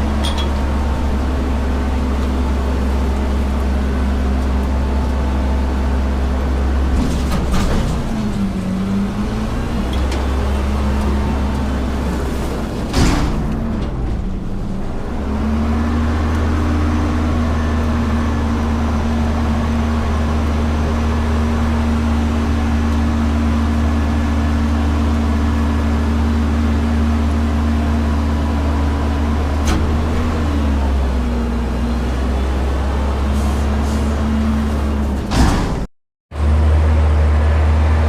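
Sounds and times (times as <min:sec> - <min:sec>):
garbage truck diesel engine revving: 0:00.0 - 0:38.0
sharp bang: 0:35.3 - 0:35.9.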